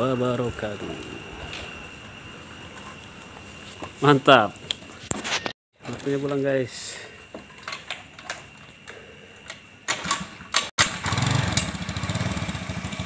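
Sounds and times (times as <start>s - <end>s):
small engine idling: 8.6s - 13.0s.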